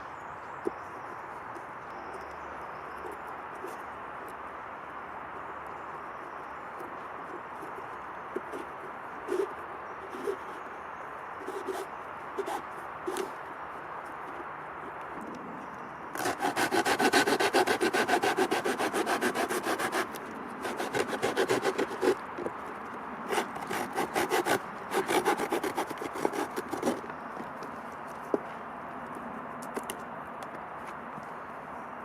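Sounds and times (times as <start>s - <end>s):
hand saw cutting wood: 16.2s - 22.5s, 23.3s - 27.1s.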